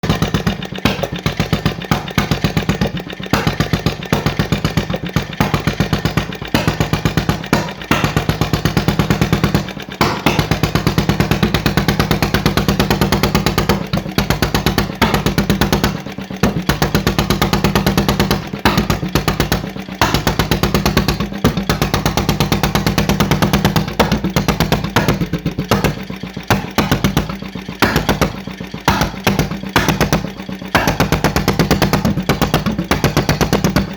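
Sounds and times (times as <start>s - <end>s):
stationary engine exhaust beats: 0.0s - 33.9s.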